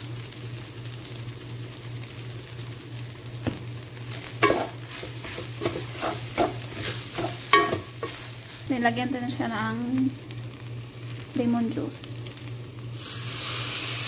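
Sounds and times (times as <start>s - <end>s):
chicken sizzling in a pan: 0.0s - 14.0s
utensil scraping a pan: 4.2s - 8.3s.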